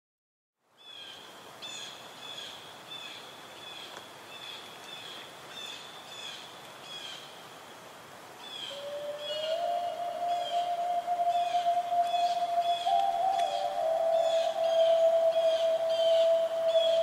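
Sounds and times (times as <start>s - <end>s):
steady hiss: 0.6s - 17.0s
bird chirping: 8.5s - 17.0s.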